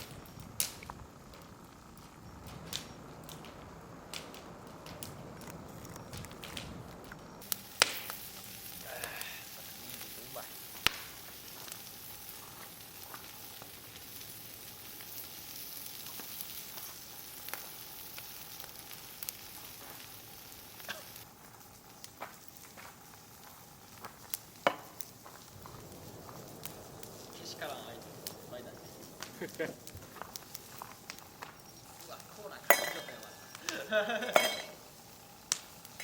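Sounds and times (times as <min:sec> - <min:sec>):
food sizzling on a griddle: 0:00.0 - 0:03.6, 0:05.3 - 0:36.0
sharp clicks and pops: 0:00.0 - 0:09.2, 0:10.7 - 0:14.0, 0:28.0 - 0:32.8, 0:35.3 - 0:36.0.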